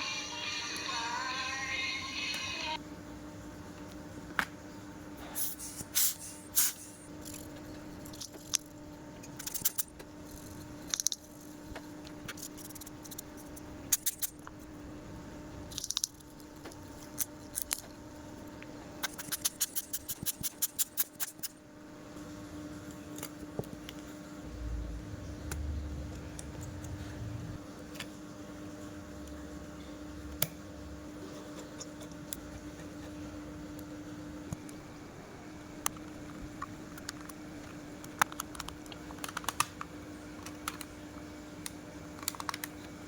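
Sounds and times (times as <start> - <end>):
steady low hum: 0.0 - 43.0
small parts clicking and scraping: 7.2 - 11.5, 15.7 - 17.9.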